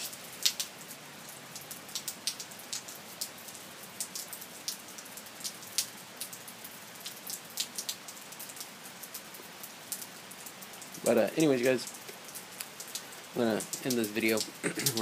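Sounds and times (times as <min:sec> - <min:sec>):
rain hiss: 0:00.0 - 0:15.0
raindrop hits: 0:09.9 - 0:15.0.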